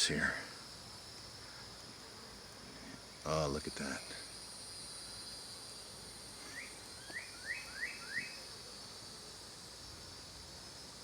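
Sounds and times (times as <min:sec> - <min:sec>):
high-pitched insect trill: 0:00.0 - 0:11.0
small bird chirping: 0:06.4 - 0:08.4.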